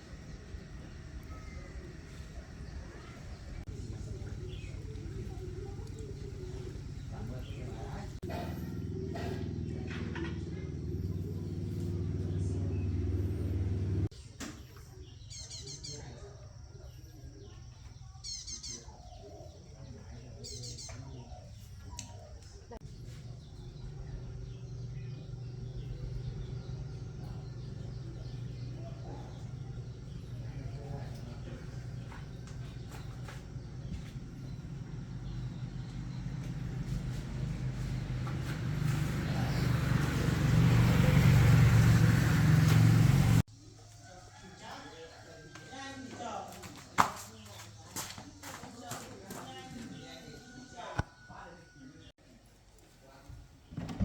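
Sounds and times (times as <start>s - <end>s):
engine low rumble: 0.0s - 15.5s, 21.7s - 43.6s
small bird chirping: 0.0s - 40.1s
steady low hum: 22.5s - 43.5s.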